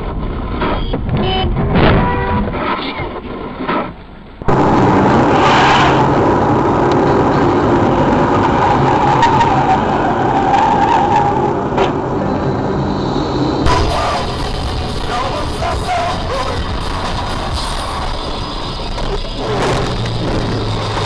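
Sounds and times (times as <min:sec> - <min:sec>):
car engine: 0:03.2 - 0:21.0
car tyres skidding: 0:05.1 - 0:06.4, 0:08.3 - 0:12.1, 0:13.6 - 0:21.0.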